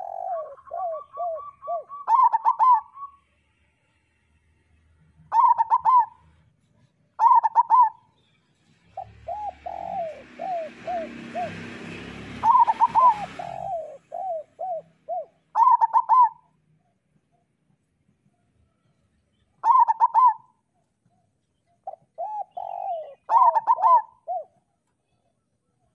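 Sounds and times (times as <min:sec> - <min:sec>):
doves cooing: 0:00.0 - 0:03.2, 0:05.3 - 0:06.2, 0:07.2 - 0:08.1, 0:08.9 - 0:16.6, 0:19.6 - 0:21.2, 0:21.8 - 0:24.8.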